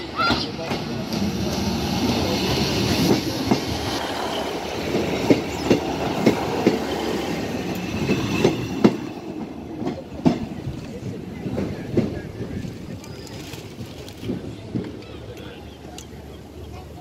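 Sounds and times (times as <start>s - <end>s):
train rumbling past: 0.0s - 17.0s.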